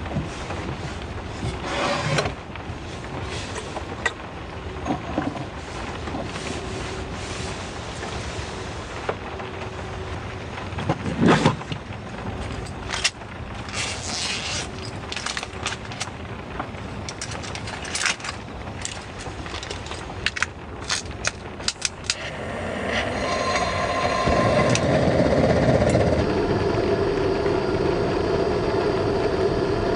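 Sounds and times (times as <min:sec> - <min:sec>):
heavy rain hiss: 0:02.4 - 0:10.9, 0:21.8 - 0:29.9
low steady hum: 0:21.8 - 0:29.9.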